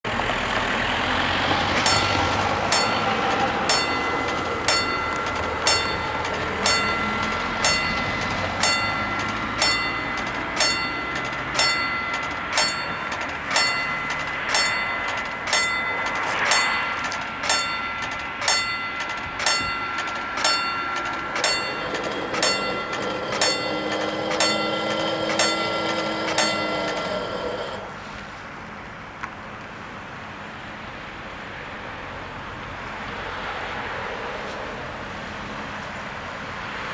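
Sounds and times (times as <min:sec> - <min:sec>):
level crossing warning bells: 0:00.8 - 0:28.2.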